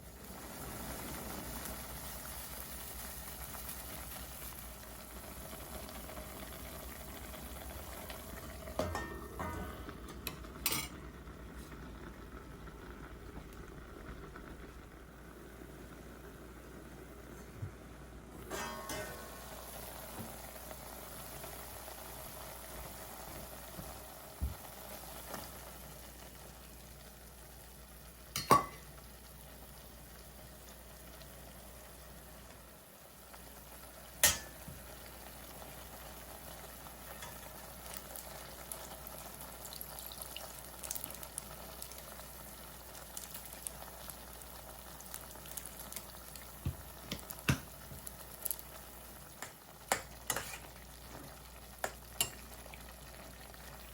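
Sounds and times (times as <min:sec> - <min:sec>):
food sizzling on a stove: 0:00.0 - 0:53.9
utensil knocking against a pan: 0:46.6 - 0:47.7.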